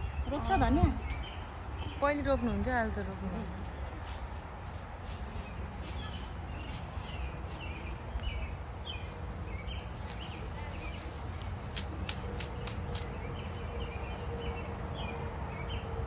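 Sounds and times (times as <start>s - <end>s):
bird chirping: 5.3s - 11.2s.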